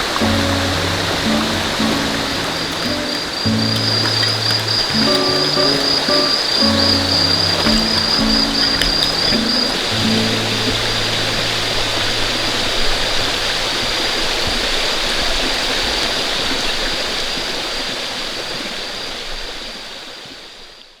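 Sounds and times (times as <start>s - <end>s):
rushing water: 0.0s - 21.0s.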